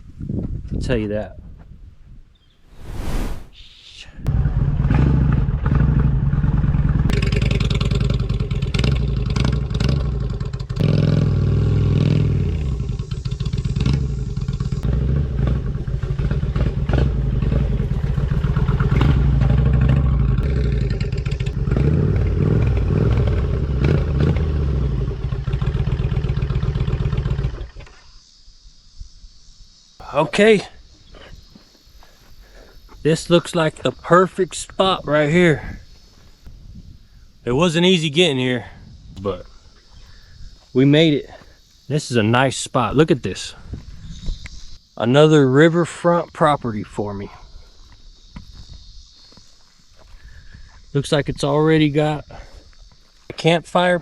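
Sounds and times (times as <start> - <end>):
motorcycle engine running: 4.3 - 27.7.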